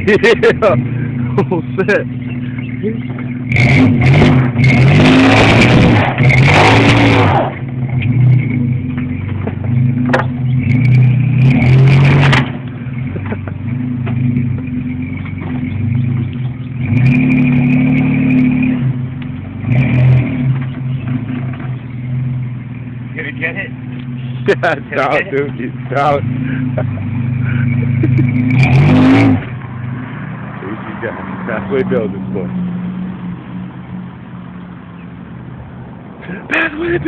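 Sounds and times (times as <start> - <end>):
truck engine revving hard: 0.0 - 22.6, 23.2 - 34.2.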